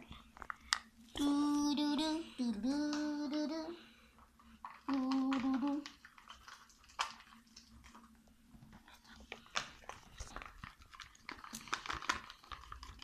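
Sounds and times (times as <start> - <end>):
person humming a tune: 1.1 - 3.8, 4.8 - 6.0.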